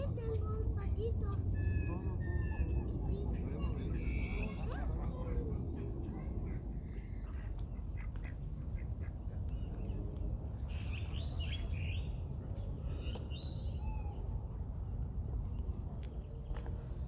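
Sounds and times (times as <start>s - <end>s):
low background rumble: 0.0s - 17.0s
birds chirping: 1.3s - 17.0s.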